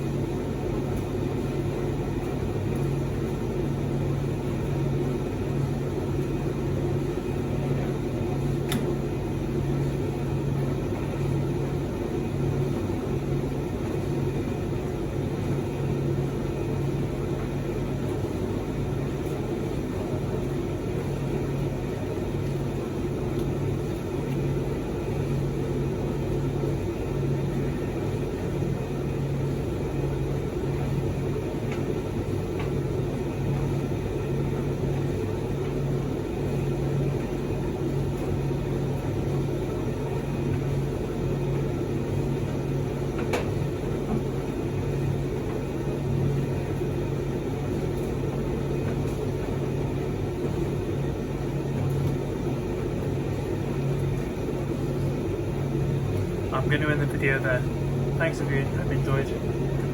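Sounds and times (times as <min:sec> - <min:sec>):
tumble dryer motor hum: 0:00.0 - 0:59.9
faint clicks from tumbling load: 0:08.4 - 0:09.1, 0:31.6 - 0:32.9, 0:42.4 - 0:44.6.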